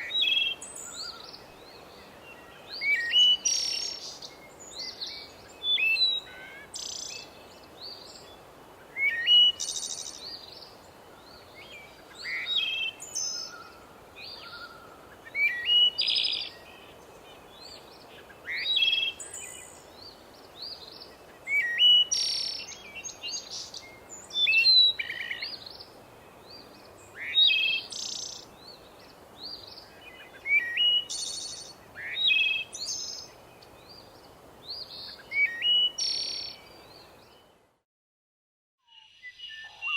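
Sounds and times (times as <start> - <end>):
faint steady hiss: 0.0 - 37.8
songbirds chirping: 0.0 - 37.8, 38.8 - 39.9.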